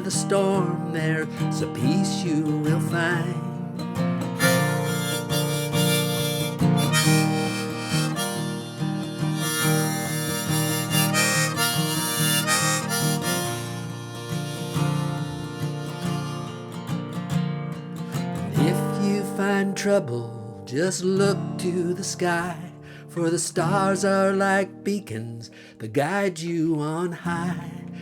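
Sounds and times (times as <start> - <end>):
strummed acoustic guitar: 0.0 - 28.0
harmonica playing lead: 4.4 - 17.0.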